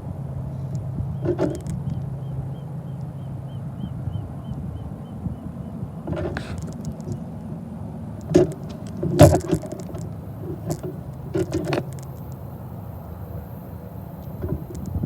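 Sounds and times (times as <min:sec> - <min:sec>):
metallic clanks and rattles: 0:08.2 - 0:12.0.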